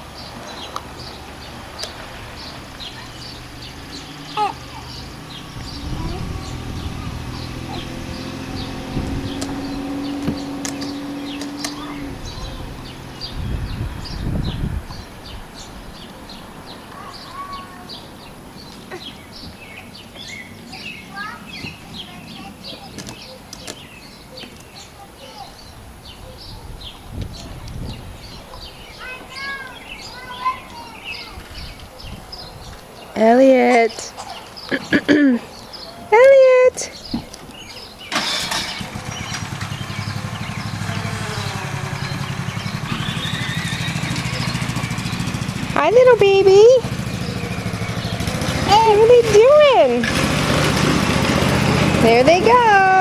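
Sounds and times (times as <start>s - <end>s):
songbirds chirping: 0.0s - 53.0s
tractor engine idling: 38.1s - 53.0s
low whistled bird notes: 39.1s - 45.5s.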